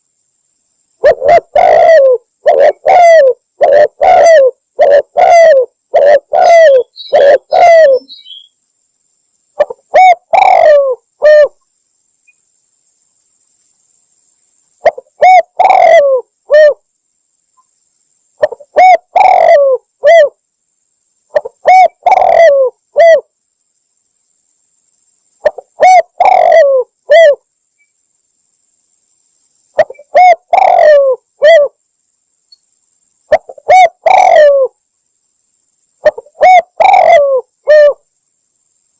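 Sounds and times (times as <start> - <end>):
dove cooing: 1.0 - 8.4, 9.6 - 11.6, 14.8 - 16.8, 18.4 - 20.4, 21.3 - 23.3, 25.4 - 27.4, 29.8 - 31.8, 33.3 - 34.8, 36.0 - 38.0.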